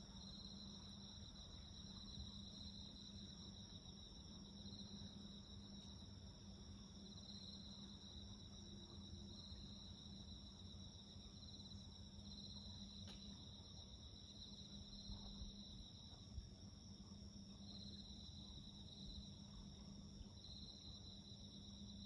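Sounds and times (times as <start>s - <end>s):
crickets chirping: 0.0s - 22.0s
faint click: 13.0s - 13.3s.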